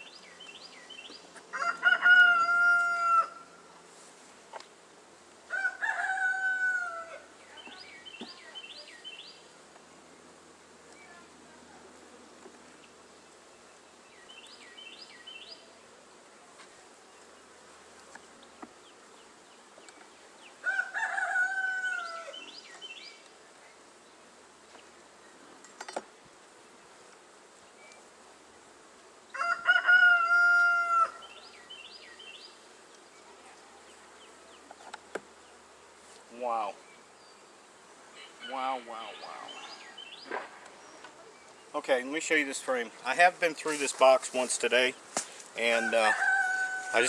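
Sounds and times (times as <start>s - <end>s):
small birds chirping: 0.0s - 1.4s, 7.3s - 10.2s, 12.5s - 15.9s, 16.7s - 20.6s, 22.0s - 25.6s, 31.2s - 47.0s
honey bees humming: 0.0s - 47.0s
rooster crowing: 1.5s - 3.6s, 5.5s - 7.3s, 20.6s - 22.5s, 29.3s - 31.4s, 45.6s - 47.0s.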